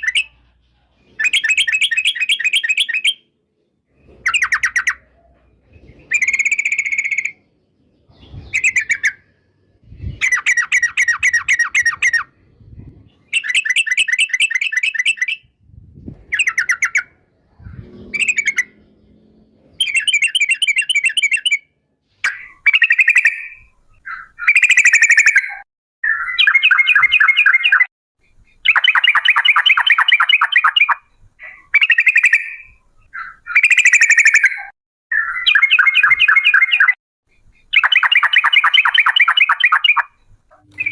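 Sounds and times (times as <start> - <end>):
bird song with rattling trills: 0.0 - 3.2, 3.9 - 9.4, 16.3 - 21.7, 22.3 - 40.9.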